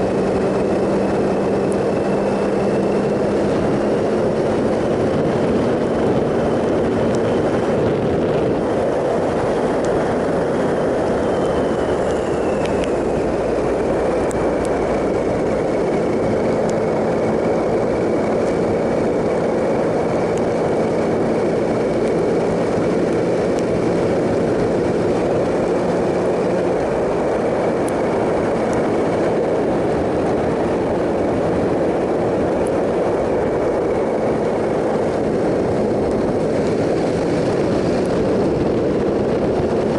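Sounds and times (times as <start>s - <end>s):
motorcycle engine cruising: 0.0s - 39.9s
wind rush: 0.0s - 39.9s.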